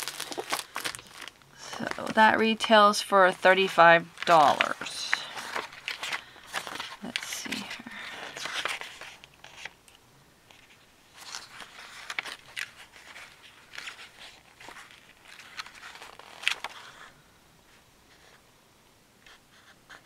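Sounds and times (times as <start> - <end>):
packaging rustling and crinkling: 0.0 - 2.6, 4.0 - 9.9, 10.5 - 17.2.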